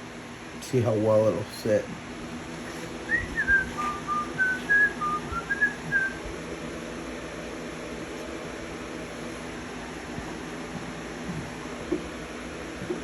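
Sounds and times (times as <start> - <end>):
steady low hum: 0.0 - 13.0
person whistling a tune: 3.1 - 6.2.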